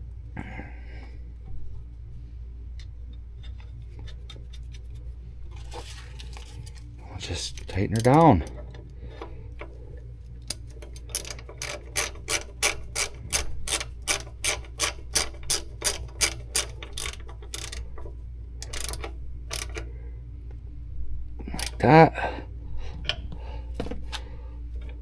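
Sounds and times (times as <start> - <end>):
ratchet wrench clicking: 7.4 - 8.6, 10.4 - 19.9, 21.5 - 21.8.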